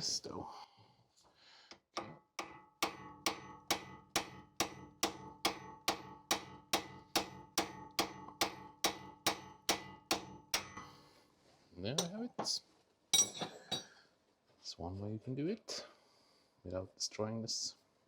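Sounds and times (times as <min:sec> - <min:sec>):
hammer striking metal tool: 0:02.0 - 0:11.1, 0:12.0 - 0:12.6, 0:13.2 - 0:13.9.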